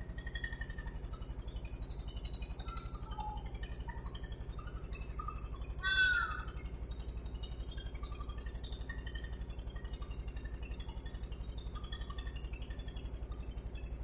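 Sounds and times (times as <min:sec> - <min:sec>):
meow-like animal call: 0:05.8 - 0:06.5.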